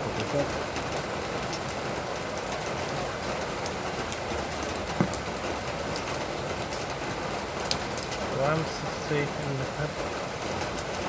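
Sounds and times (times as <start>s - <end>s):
steady rain falling: 0.0s - 11.0s
sharp knock: 5.0s - 5.2s.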